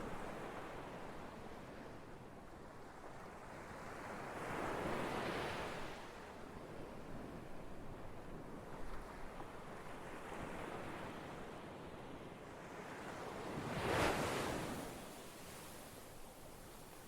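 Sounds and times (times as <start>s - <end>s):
surf washing on shore: 13.6s - 16.2s.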